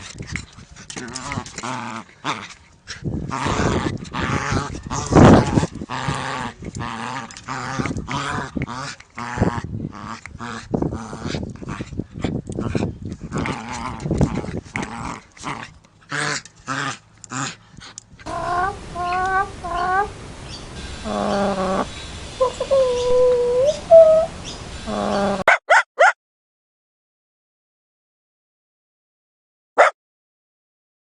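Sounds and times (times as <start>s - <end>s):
dogs growling and yapping: 0.0s - 20.2s, 21.0s - 25.6s
high whining calls: 18.3s - 25.4s.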